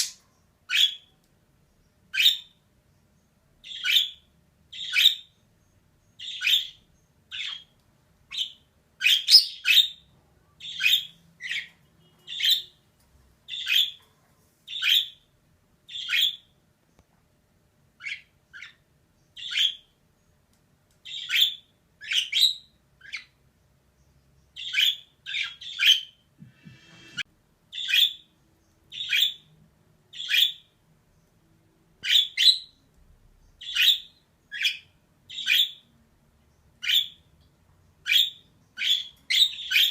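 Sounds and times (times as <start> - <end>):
budgerigar chirping: 0.0 - 1.1, 2.1 - 2.6, 3.6 - 5.4, 6.2 - 7.7, 8.3 - 12.8, 13.5 - 14.0, 14.7 - 15.3, 15.9 - 16.5, 18.0 - 18.8, 19.4 - 19.9, 21.0 - 23.4, 24.6 - 26.2, 27.0 - 28.3, 28.9 - 29.5, 30.1 - 30.7, 32.0 - 32.8, 33.6 - 35.8, 36.8 - 37.2, 38.0 - 39.9.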